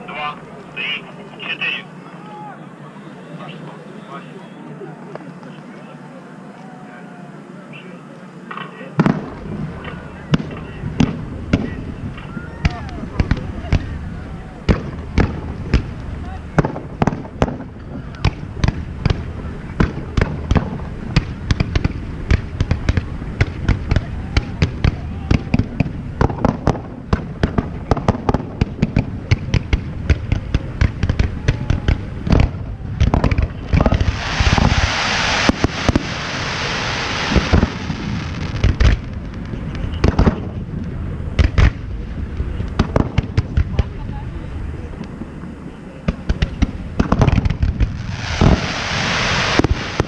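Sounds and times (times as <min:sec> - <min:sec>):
fireworks bangs and pops: 0:09.0 - 0:44.2, 0:46.0 - 0:50.0
fireworks crackling hiss: 0:14.7 - 0:50.0.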